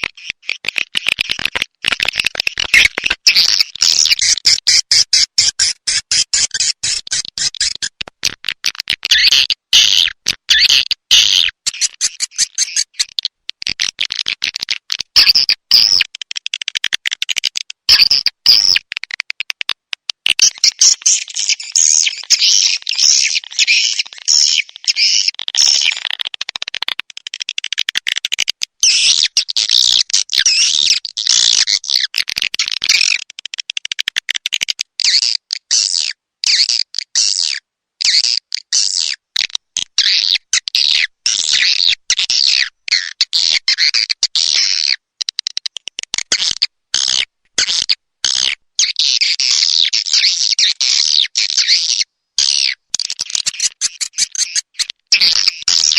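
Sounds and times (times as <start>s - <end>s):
swiftlets chirping and twittering: 2.3s - 8.0s, 10.0s - 13.8s, 20.4s - 26.2s, 52.6s - 55.9s.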